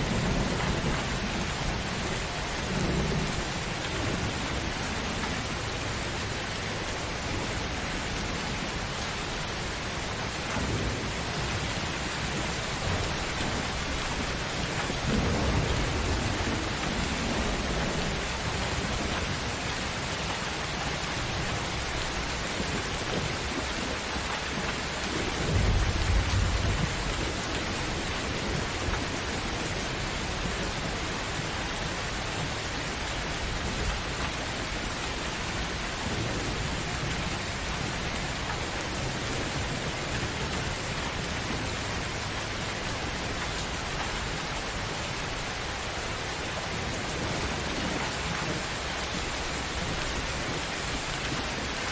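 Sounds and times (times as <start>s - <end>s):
low rolling thunder: 0.0s - 6.1s, 10.6s - 32.5s
heavy rain falling: 0.0s - 51.9s.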